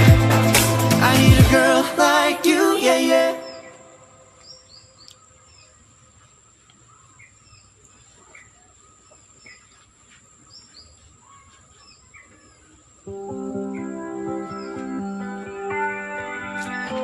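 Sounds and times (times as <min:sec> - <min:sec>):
faint bird chirps: 0:03.4 - 0:13.1.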